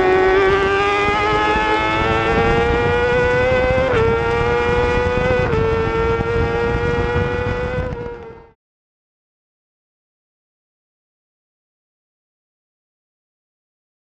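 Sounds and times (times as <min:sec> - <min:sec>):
racing motorcycle engine revving: 0:00.0 - 0:08.6.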